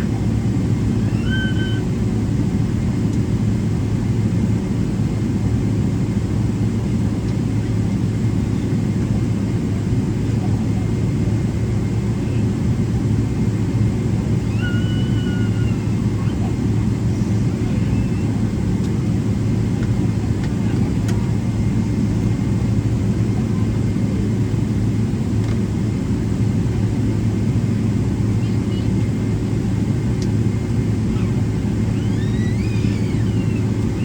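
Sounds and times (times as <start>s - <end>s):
airplane cabin rumble: 0.0s - 34.0s
constant hum: 0.0s - 34.0s.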